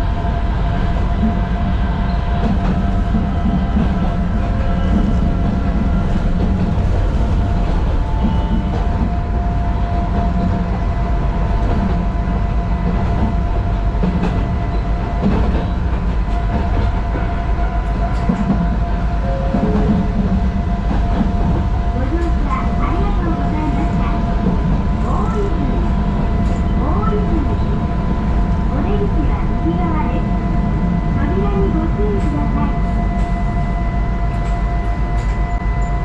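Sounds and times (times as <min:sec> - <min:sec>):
electric train whine: 0:00.0 - 0:36.0
train low rumble: 0:00.0 - 0:36.0.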